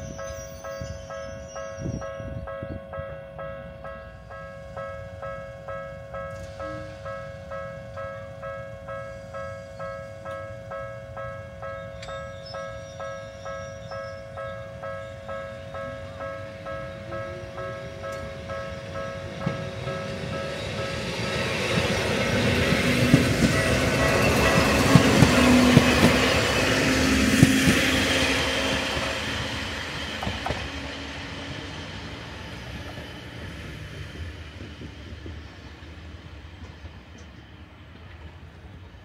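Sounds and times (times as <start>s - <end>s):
electric train passing: 0.0s - 39.0s
wheels clicking over rail joints: 16.7s - 26.8s.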